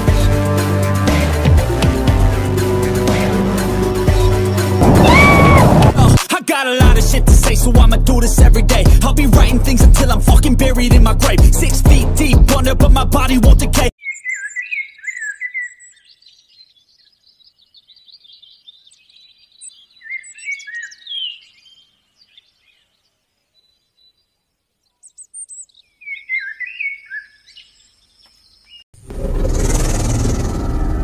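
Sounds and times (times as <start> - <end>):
birds chirping: 14.0 - 31.0.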